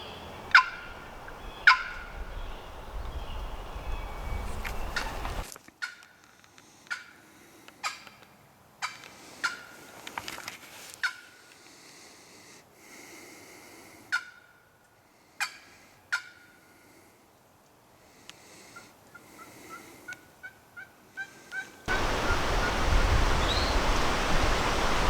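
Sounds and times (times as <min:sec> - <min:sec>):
turkey clucking: 0:00.5 - 0:02.1, 0:21.9 - 0:25.0.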